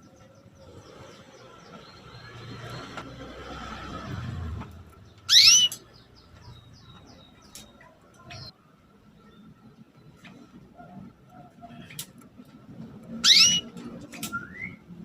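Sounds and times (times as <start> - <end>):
canary chirping: 0.0 - 8.5, 13.0 - 14.8.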